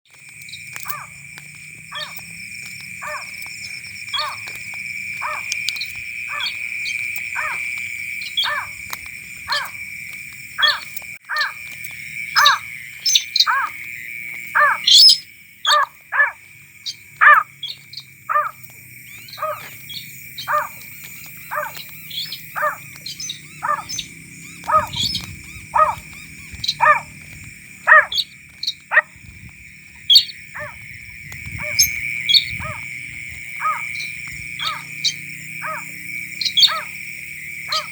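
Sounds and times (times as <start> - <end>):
bird calling sharp notes: 6.3 - 8.7, 10.6 - 11.6, 12.3 - 13.8, 14.6 - 27.2, 27.8 - 29.1, 30.0 - 30.8, 33.6 - 37.0, 37.7 - 37.9.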